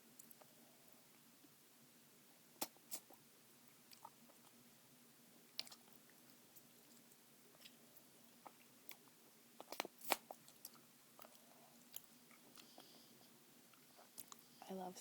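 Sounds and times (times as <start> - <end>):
person chewing gum: 3.9 - 4.6, 5.6 - 14.5.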